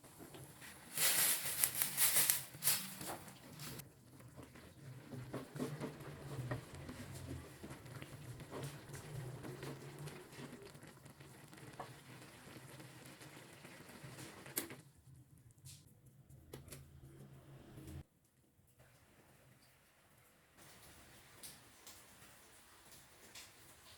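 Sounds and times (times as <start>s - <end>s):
soup bubbling in a pot: 3.0s - 14.9s.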